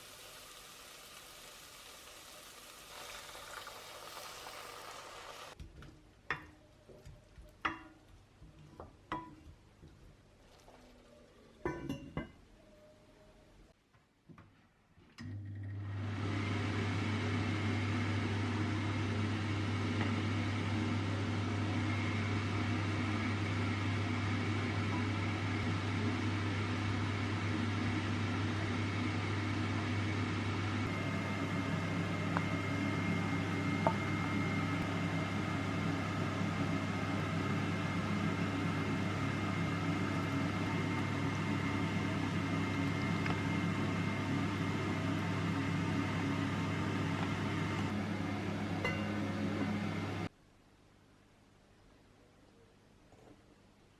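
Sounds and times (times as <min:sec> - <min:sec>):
electric motor hum: 0:30.6 - 0:50.3.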